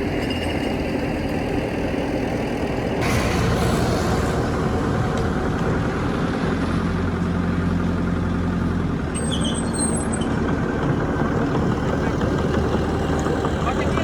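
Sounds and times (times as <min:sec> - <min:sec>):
faint high squeal: 0:03.0 - 0:07.3
heavy diesel machinery running: 0:03.0 - 0:14.0.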